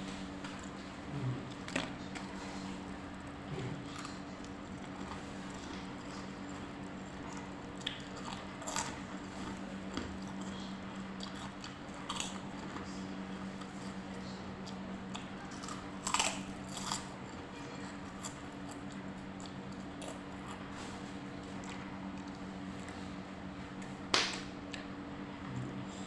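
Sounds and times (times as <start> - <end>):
steady low hum: 0.0 - 26.0
crunchy bites and chewing: 0.4 - 21.0.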